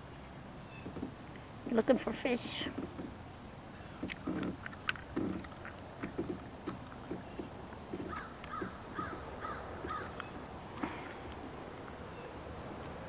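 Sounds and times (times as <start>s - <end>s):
small knocks from kayak: 0.8s - 1.2s, 2.7s - 3.2s, 4.0s - 11.5s
light water splashes: 2.5s - 13.0s
bird calling: 3.7s - 12.4s.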